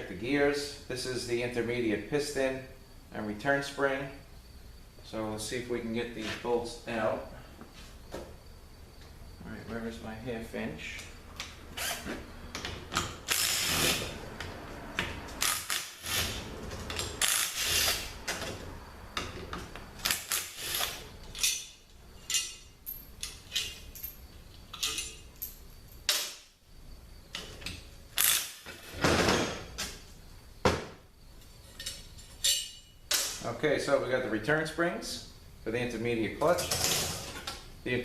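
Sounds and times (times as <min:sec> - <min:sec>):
ratchet wrench clicking: 0:13.2 - 0:14.0, 0:15.4 - 0:18.2, 0:28.2 - 0:28.7
metal parts clinking: 0:20.0 - 0:26.5, 0:31.7 - 0:33.4.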